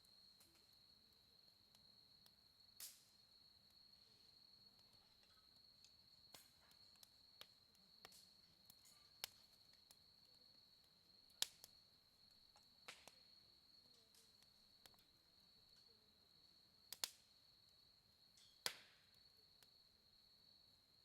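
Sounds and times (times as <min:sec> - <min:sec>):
campfire crackling and popping: 0:00.0 - 0:20.2
crickets trilling: 0:00.0 - 0:21.0.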